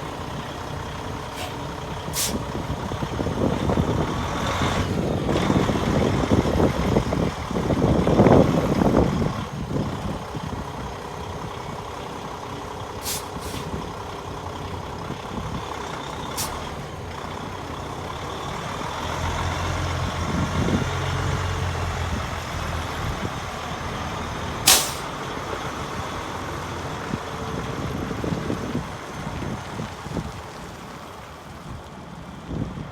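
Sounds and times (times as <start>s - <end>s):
truck diesel engine running: 0.0s - 32.9s
air release hisses: 2.2s - 2.4s, 13.0s - 13.7s, 24.7s - 25.1s.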